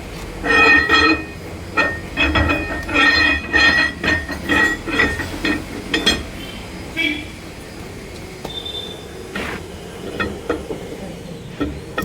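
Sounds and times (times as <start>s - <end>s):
metal gears clinking and knocking: 0.2s - 6.4s.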